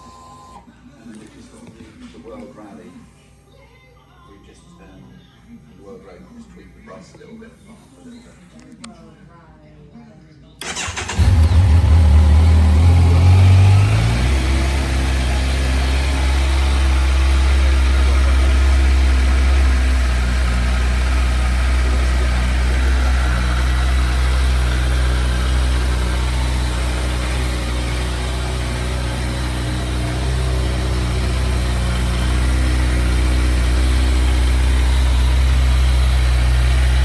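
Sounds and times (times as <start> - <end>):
motorcycle engine idling: 10.6 - 37.0.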